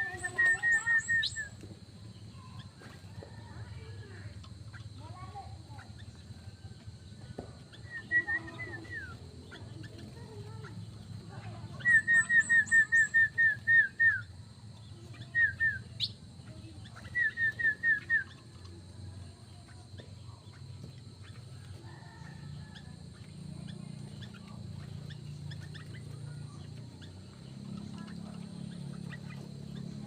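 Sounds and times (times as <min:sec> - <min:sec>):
faint bird chirps: 0:00.0 - 0:30.0
steady low hum: 0:00.0 - 0:30.0
sharp downward-slurred bird call: 0:11.8 - 0:14.2.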